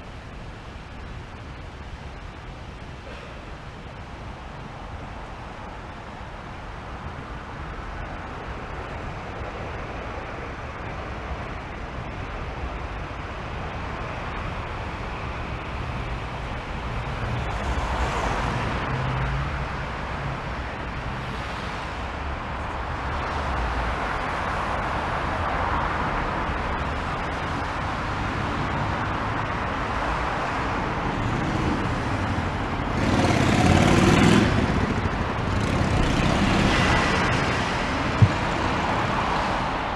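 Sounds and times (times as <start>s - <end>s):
passing cars: 13.1s - 39.9s
vehicle passing close: 17.0s - 39.9s.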